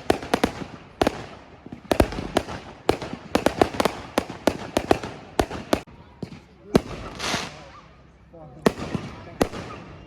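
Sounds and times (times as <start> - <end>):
fireworks bangs: 0.0 - 7.9, 8.6 - 10.0
fireworks crackling: 0.0 - 8.0.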